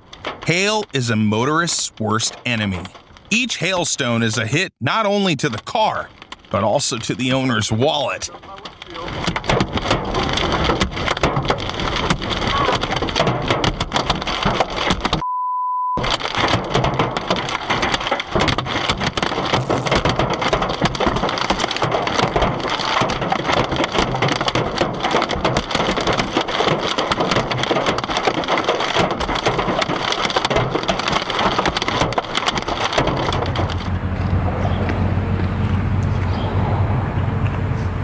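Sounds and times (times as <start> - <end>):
hailstones hitting a car: 8.3 - 15.2, 16.0 - 36.2.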